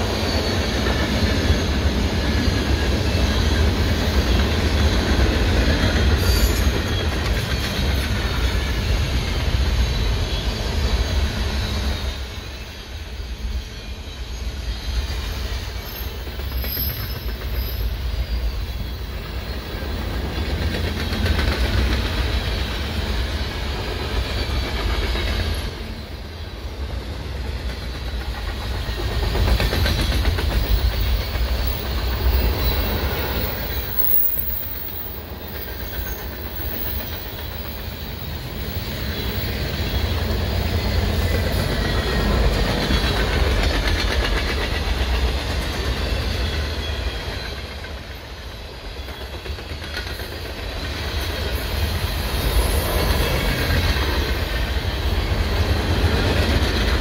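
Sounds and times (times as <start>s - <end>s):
faint high wheel squeal: 0.0s - 4.8s, 5.9s - 19.9s, 30.0s - 43.1s, 45.8s - 49.9s
steel wheels rumbling on rail: 0.0s - 57.0s.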